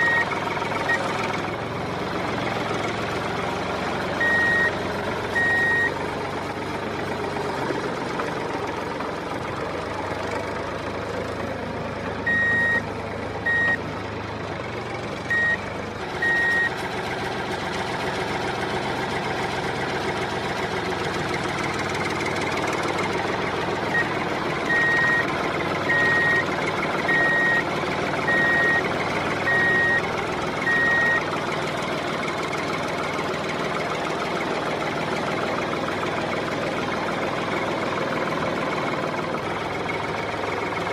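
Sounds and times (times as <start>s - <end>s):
electronic reversing beeper: 0.0s - 1.0s, 4.2s - 6.0s, 12.3s - 12.8s, 13.4s - 13.8s, 15.3s - 16.8s, 24.7s - 25.3s, 25.9s - 26.4s, 27.1s - 27.6s, 28.3s - 30.0s, 30.6s - 31.2s.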